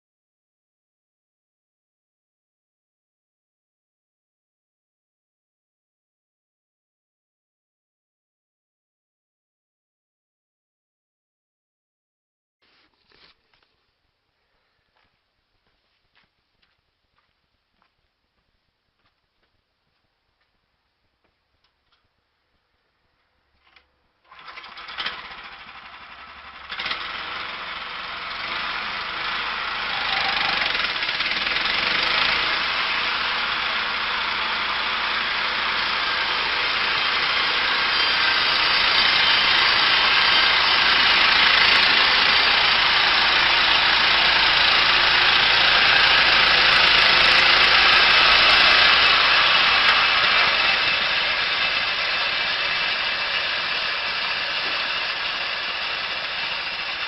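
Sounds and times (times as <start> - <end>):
machine engine running: 24.3 - 57.0.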